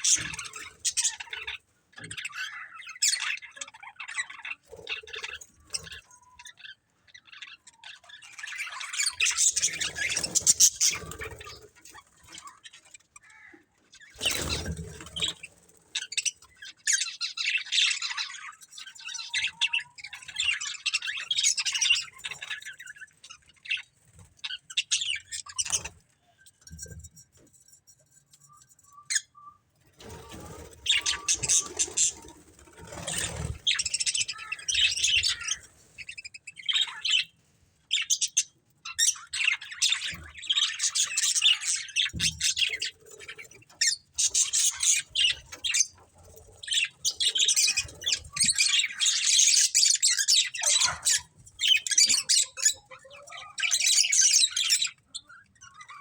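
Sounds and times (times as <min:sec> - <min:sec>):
budgerigars chirping and chattering: 0:00.0 - 0:56.0.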